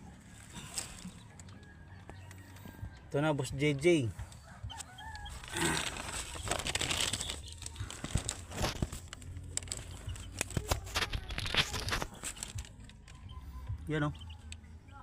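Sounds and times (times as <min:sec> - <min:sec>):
rustling and crinkling: 0:00.2 - 0:01.5, 0:04.8 - 0:13.2.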